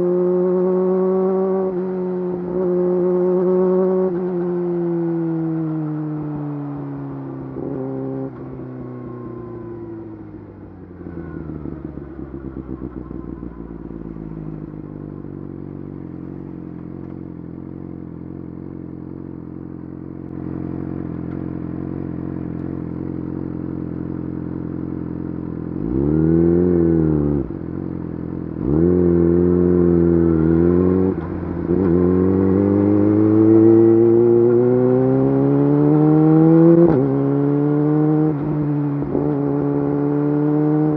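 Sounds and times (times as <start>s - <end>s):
motorcycle engine revving: 10.1s - 40.9s.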